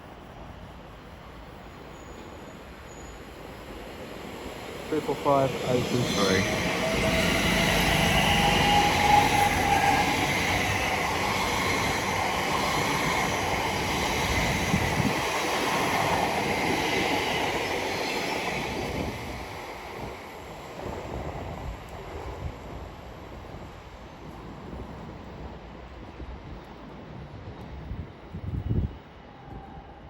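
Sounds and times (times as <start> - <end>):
train wheels on track: 0.0 - 30.0
electric train motor whine: 5.7 - 10.7.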